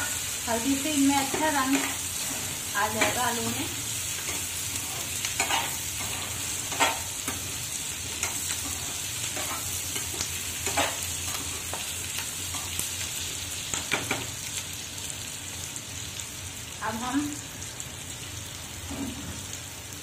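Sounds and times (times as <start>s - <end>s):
potatoes sizzling in oil: 0.0s - 20.0s
spatula scraping pan: 4.2s - 7.5s.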